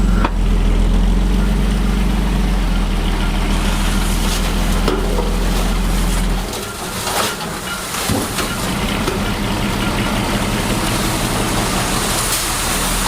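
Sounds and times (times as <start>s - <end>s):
heavy machinery diesel engine running: 0.0s - 13.0s
metal knocks and clanks: 4.3s - 11.5s.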